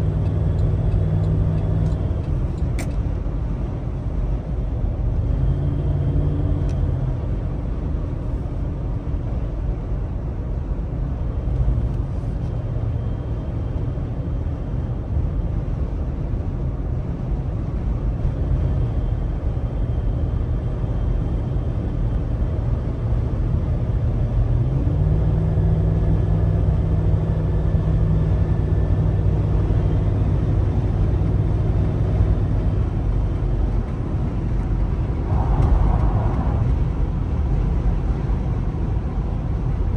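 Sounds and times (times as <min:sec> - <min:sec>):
road noise: 0:00.0 - 0:39.9
car engine running: 0:29.5 - 0:39.9.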